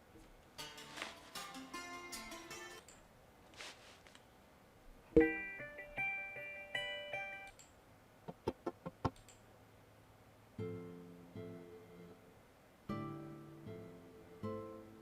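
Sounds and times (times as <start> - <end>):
plucked guitar notes: 0.6 - 2.8, 5.2 - 7.4, 10.6 - 12.3, 12.9 - 15.0
sharp clicks: 7.5 - 9.4.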